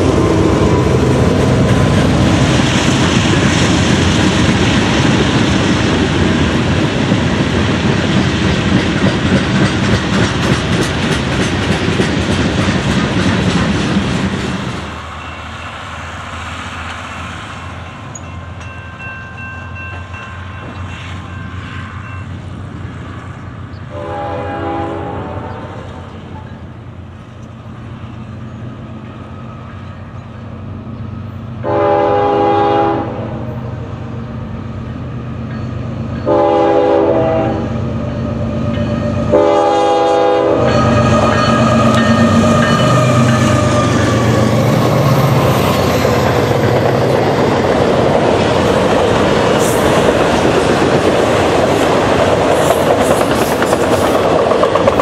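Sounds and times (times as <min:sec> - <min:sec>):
diesel locomotive rumble: 0:00.0 - 0:55.0
locomotive horn blasts: 0:23.9 - 0:26.0, 0:31.6 - 0:33.5, 0:36.2 - 0:37.8, 0:38.8 - 0:44.0.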